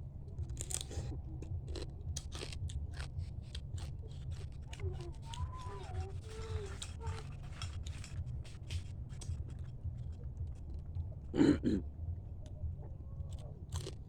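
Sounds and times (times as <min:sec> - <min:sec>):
chewing and crunching food: 0:00.0 - 0:14.0.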